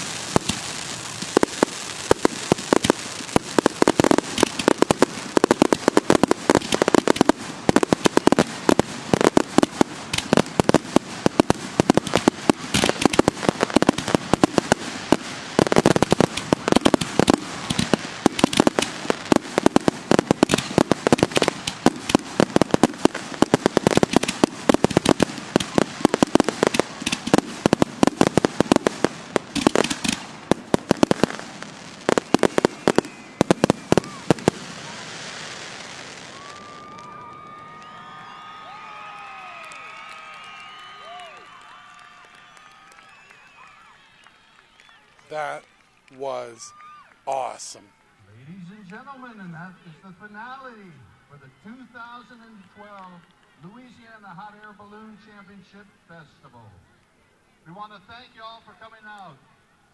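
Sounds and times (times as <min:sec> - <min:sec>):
firework shell bursts and crackling: 0:00.0 - 0:37.6.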